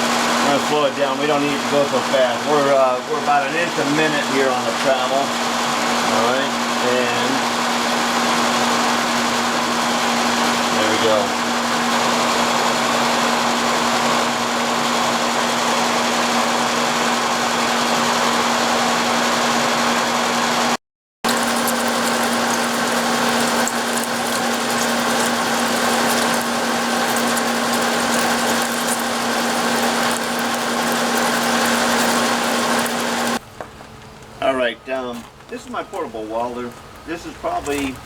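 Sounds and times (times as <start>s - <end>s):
milling machine cutting metal: 21.3s - 33.4s.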